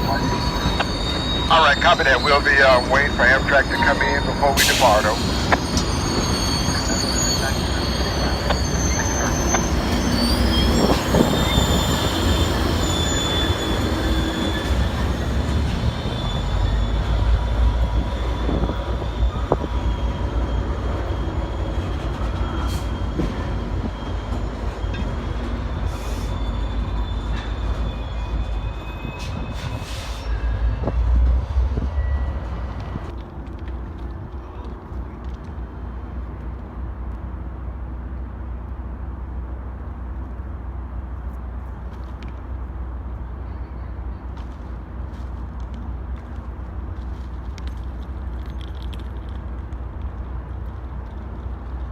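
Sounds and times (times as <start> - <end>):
wheel squeal: 0.0 - 31.1
train rumbling on rails: 0.0 - 51.9.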